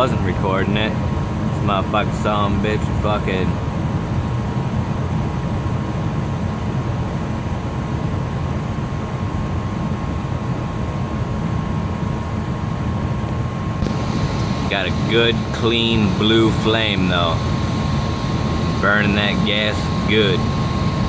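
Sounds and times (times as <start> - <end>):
gas furnace burner rumble: 13.7 - 21.0
thin steady tone: 13.9 - 21.0.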